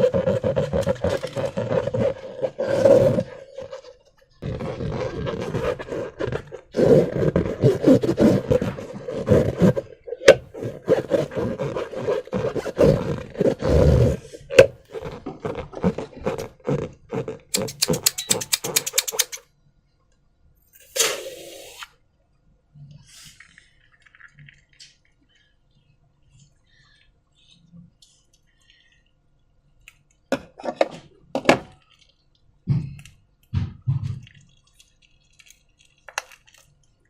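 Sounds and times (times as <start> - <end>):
air squealing from balloon neck: 17.6 - 19.4, 20.9 - 21.9.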